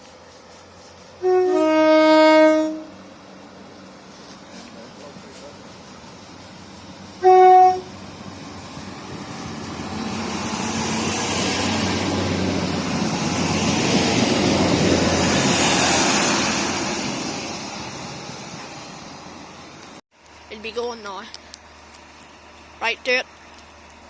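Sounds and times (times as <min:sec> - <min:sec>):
passing train rumble: 0:00.0 - 0:24.0
train horn blast: 0:01.2 - 0:03.0, 0:07.2 - 0:08.0.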